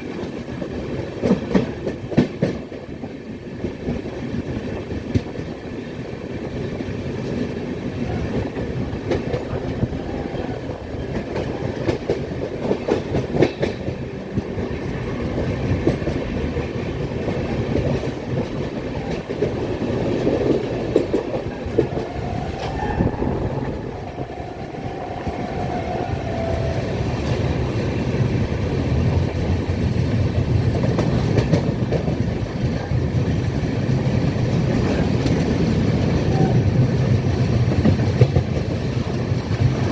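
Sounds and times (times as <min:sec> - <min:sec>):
train wheels clattering: 0:00.0 - 0:39.9
faint high tone: 0:22.0 - 0:26.8.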